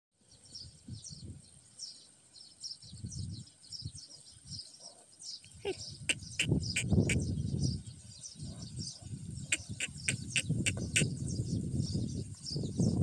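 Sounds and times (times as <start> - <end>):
small birds chirping: 0.2 - 13.0
sharp bird calls: 4.0 - 11.5.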